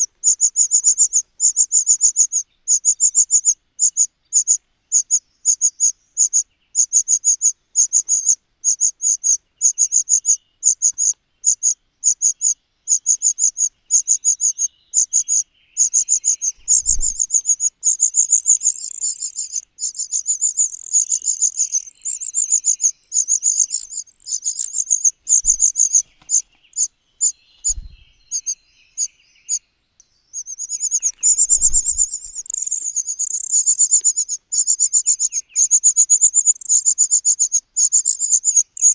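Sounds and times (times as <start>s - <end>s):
high-pitched chirping: 15.9s - 26.9s, 30.4s - 38.9s.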